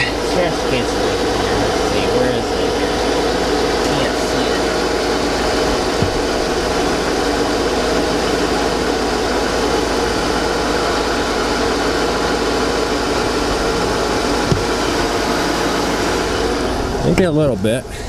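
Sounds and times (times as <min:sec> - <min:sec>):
car engine idling: 0:00.0 - 0:18.0
light knock: 0:14.4 - 0:15.1.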